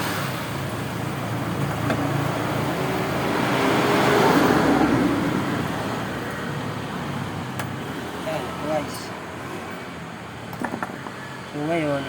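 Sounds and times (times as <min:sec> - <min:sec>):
vehicle passing by: 0:01.3 - 0:09.8.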